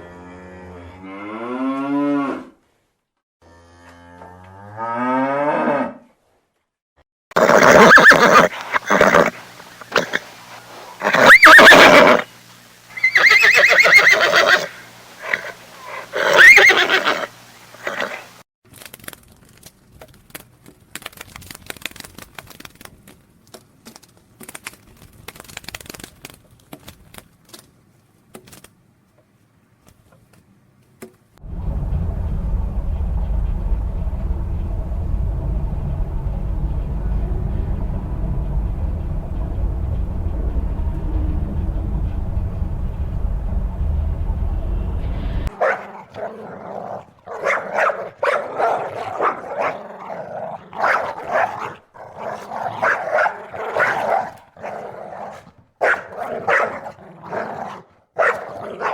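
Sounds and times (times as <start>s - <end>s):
horse neighing: 7.4s - 10.3s, 11.0s - 12.3s, 13.0s - 18.3s
low rumble: 31.4s - 45.6s.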